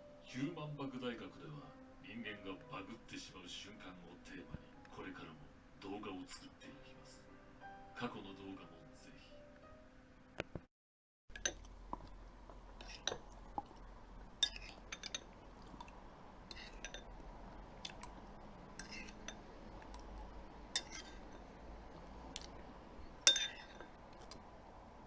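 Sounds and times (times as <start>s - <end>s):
cutlery clinking against dishes: 12.8s - 13.2s, 14.4s - 15.3s, 16.5s - 17.1s, 18.8s - 19.4s, 20.8s - 21.4s, 23.3s - 23.9s.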